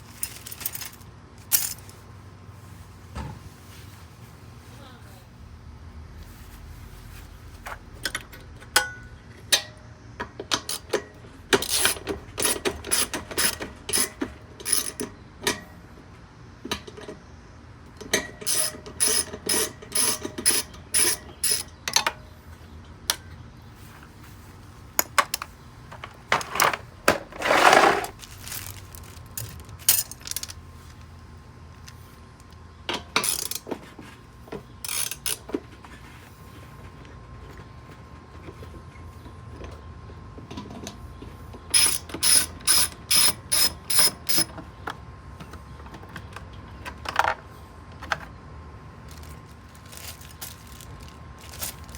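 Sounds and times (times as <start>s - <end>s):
rasping metal scrape: 26.4s - 28.1s
metallic clicks and clinks: 28.4s - 30.6s.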